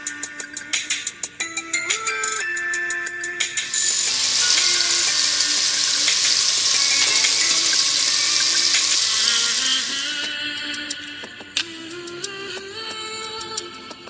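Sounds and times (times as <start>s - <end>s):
chicken sizzling in hot oil: 3.6s - 10.3s.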